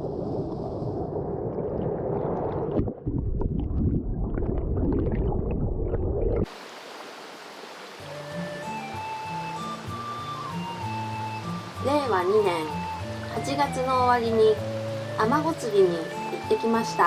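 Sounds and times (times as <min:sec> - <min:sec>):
stream water rushing: 0:06.4 - 0:17.0
water hiss: 0:06.5 - 0:17.0.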